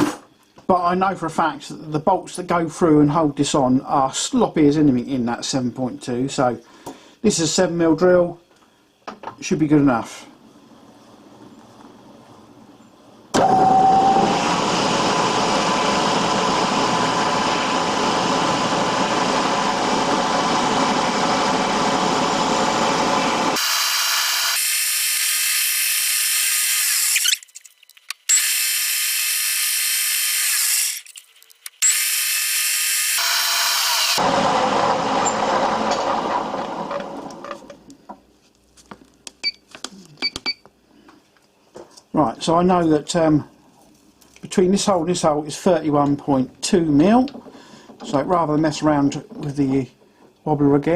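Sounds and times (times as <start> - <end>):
milling machine drilling metal: 13.4 - 27.4, 31.8 - 34.5.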